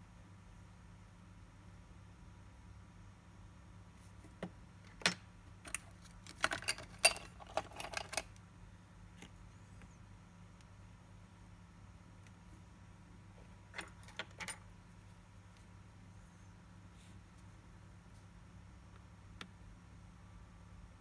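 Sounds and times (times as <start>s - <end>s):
faint steady hum: 0.0s - 21.0s
small metal tools clicking: 5.0s - 8.3s.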